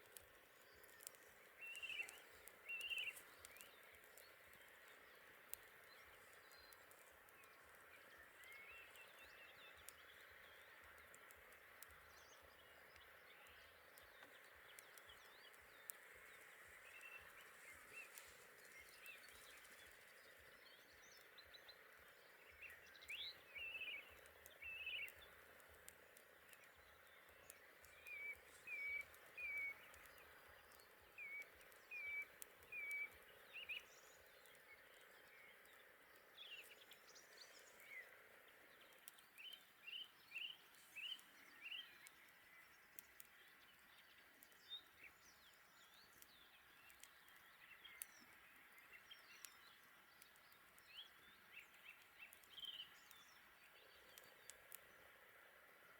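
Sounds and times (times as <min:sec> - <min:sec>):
campfire crackling: 0:00.0 - 0:55.9
faint steady hiss: 0:00.0 - 0:55.9.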